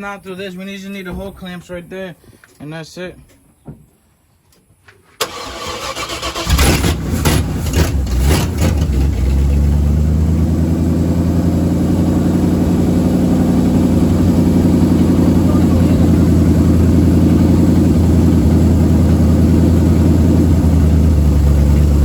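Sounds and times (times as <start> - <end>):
car engine cranking and idling: 5.2 - 22.0
engine revving: 5.2 - 22.0.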